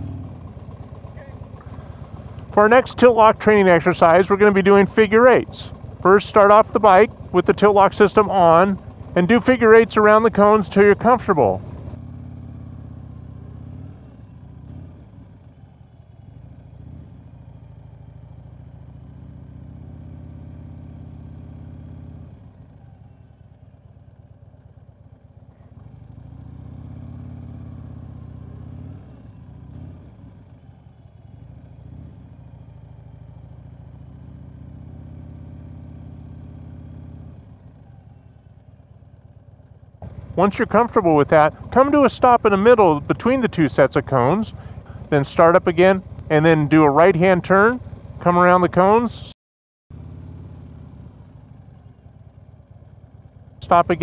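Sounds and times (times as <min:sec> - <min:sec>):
motorcycle engine rumble: 0:00.0 - 0:54.0.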